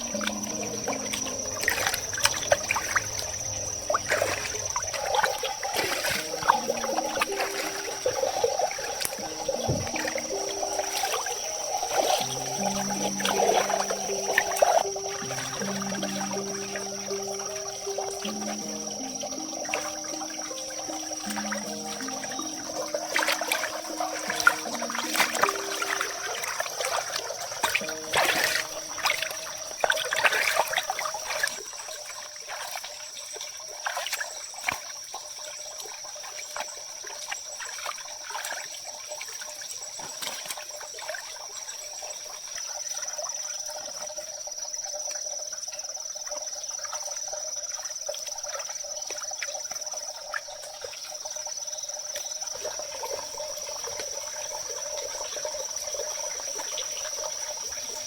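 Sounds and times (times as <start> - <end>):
high-pitched insect drone: 0.0 - 31.5
water trickling: 0.0 - 58.0.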